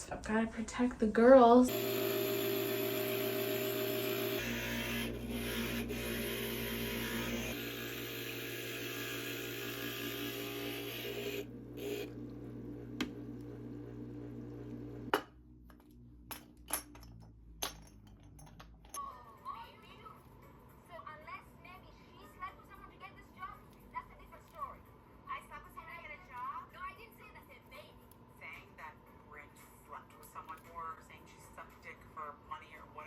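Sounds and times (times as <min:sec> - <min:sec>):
glass grinder running: 0:01.7 - 0:15.2.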